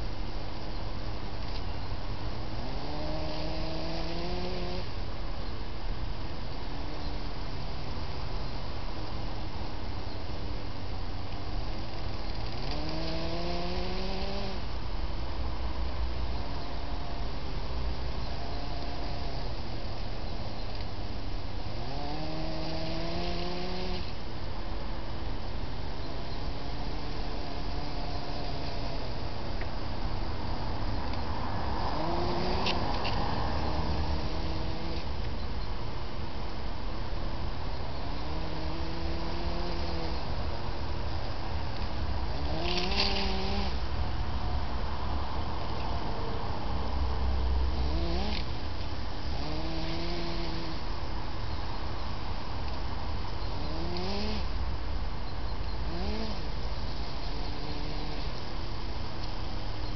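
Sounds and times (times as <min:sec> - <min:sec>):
background hiss: 0:00.0 - 0:59.9
model motor whining: 0:42.4 - 0:43.8, 0:49.3 - 0:50.9.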